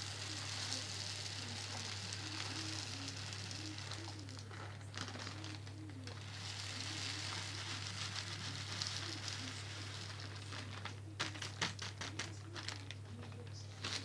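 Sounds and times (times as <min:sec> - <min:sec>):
birdseed pouring into plastic feeder: 0:00.0 - 0:14.0.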